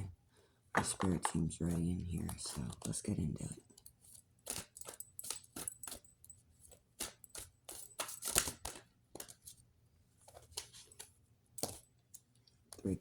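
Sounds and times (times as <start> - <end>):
cards being shuffled: 0.8 - 3.6, 4.4 - 6.0, 6.9 - 9.6, 10.2 - 11.8.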